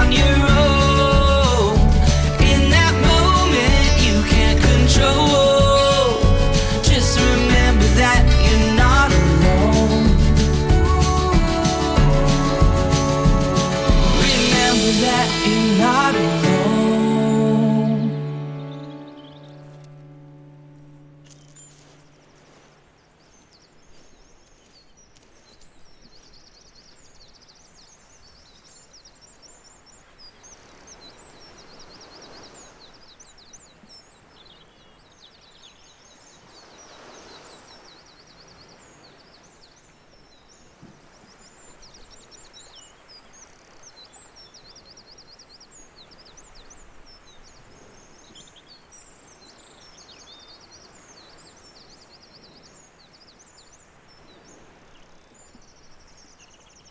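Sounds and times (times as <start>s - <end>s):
rushing swells: 0.0s - 18.6s
outdoor hiss: 0.0s - 34.8s
small birds chirping: 0.0s - 56.9s.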